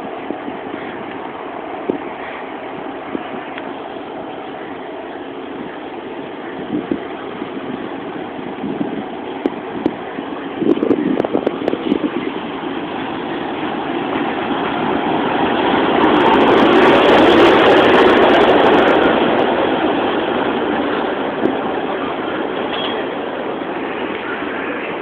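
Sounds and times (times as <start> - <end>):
train rolling past: 0.0 - 25.0.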